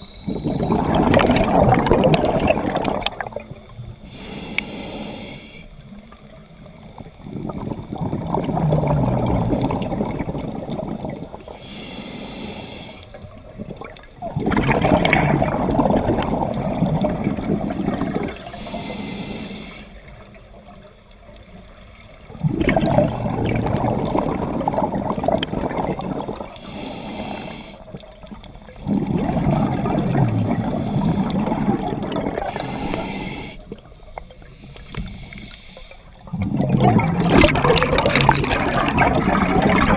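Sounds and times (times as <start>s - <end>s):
exhaled bubbles rushing: 0.0s - 4.0s, 6.9s - 11.6s, 13.4s - 18.6s, 22.2s - 26.8s, 27.8s - 35.1s, 36.2s - 39.9s
regulator hissing inhale: 4.0s - 6.0s, 11.4s - 13.3s, 18.1s - 20.2s, 26.4s - 28.0s, 30.3s - 31.7s, 32.4s - 36.3s.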